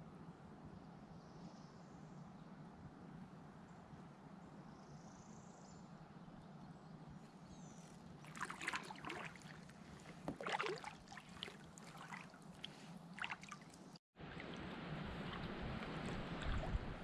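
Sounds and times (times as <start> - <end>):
paddle splashing through water: 8.2 - 17.0
water dripping off paddle: 8.3 - 14.6.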